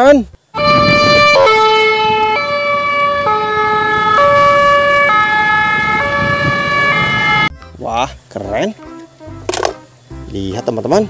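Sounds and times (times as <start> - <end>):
fire engine two-tone siren: 0.6 - 7.5.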